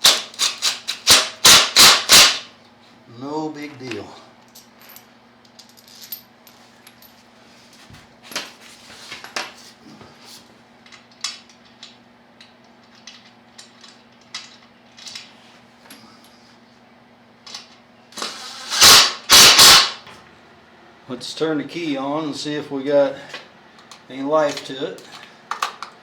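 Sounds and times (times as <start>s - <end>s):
loud sharp clacks: 18.8s - 20.0s.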